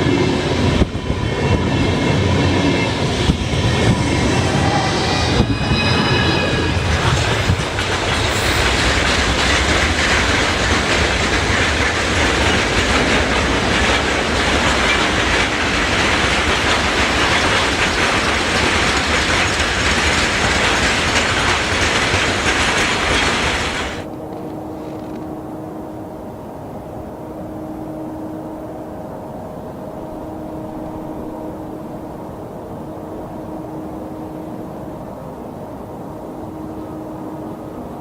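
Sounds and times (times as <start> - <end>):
clickety-clack over rail joints: 0.0 - 4.6, 6.7 - 25.3
train wheels rushing on rail: 0.0 - 25.5.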